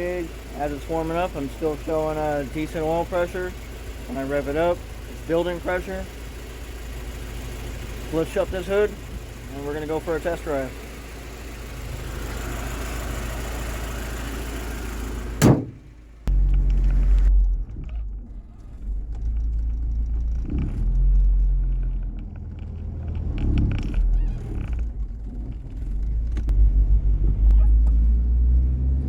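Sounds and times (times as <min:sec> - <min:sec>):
car engine idling: 0:00.0 - 0:28.4
car hood slamming shut: 0:15.3 - 0:16.0.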